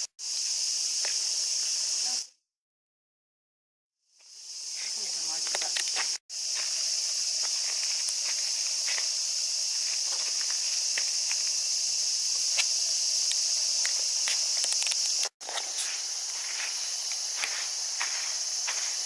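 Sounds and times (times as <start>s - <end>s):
cicadas chorus: 0.0s - 2.3s, 4.0s - 19.0s
faint footsteps: 4.8s - 11.6s, 13.8s - 19.0s.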